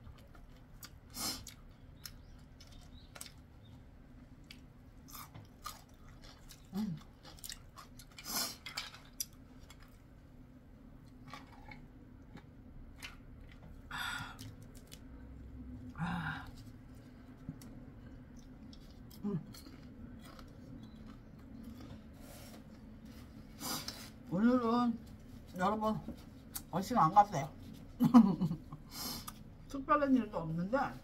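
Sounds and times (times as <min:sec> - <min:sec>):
person chewing crunchy food: 0:00.0 - 0:10.3, 0:11.0 - 0:24.2.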